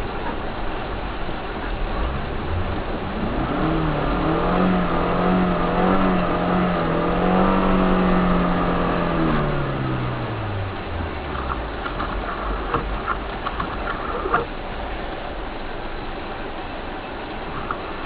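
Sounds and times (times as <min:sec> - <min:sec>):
car engine revving: 0:01.6 - 0:14.5.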